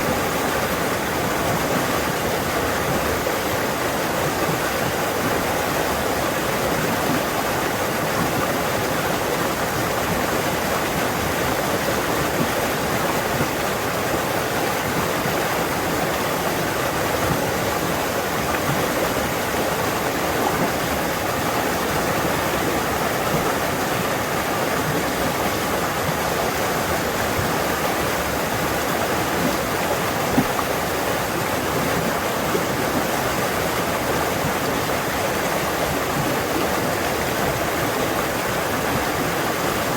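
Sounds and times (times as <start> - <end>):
stream rushing over rocks: 0.0 - 39.9
small water splashes: 17.1 - 39.1.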